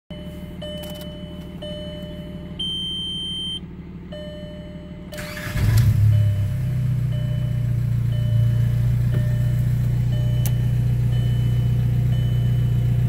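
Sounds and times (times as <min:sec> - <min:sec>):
car warning chime beeping: 0:00.1 - 0:13.0
diesel engine cranking and starting: 0:05.0 - 0:13.0.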